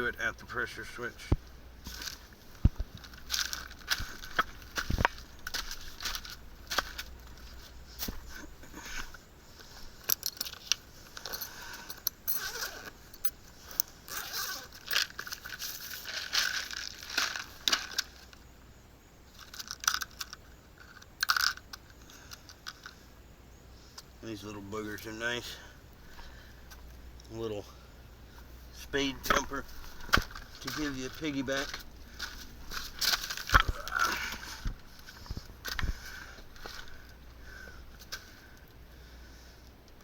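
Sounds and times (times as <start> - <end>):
small parts clicking and rattling: 1.8 - 18.4, 19.3 - 23.1, 29.3 - 37.2.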